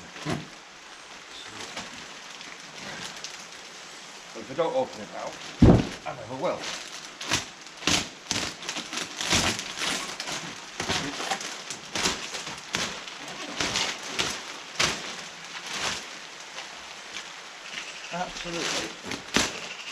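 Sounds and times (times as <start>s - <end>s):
packaging ripping and crinkling: 5.2s - 17.3s.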